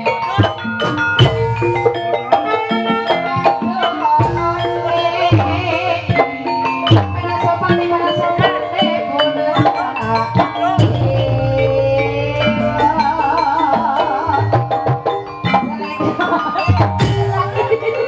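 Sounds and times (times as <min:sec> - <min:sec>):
percussion ensemble music: 0:00.0 - 0:18.0
wavering melodic line: 0:00.0 - 0:18.0.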